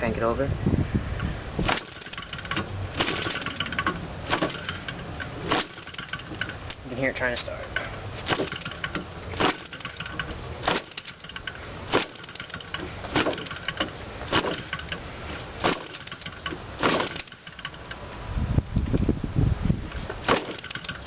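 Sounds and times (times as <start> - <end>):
engine burst: 1.6 - 6.7
model engine popping: 1.6 - 6.8, 8.2 - 18.0, 20.2 - 21.0.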